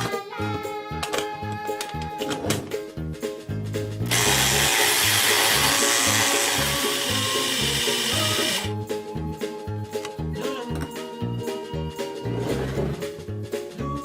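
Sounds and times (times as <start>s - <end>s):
children's background music: 0.0s - 14.0s
toy appliance motor whirring: 4.1s - 8.7s.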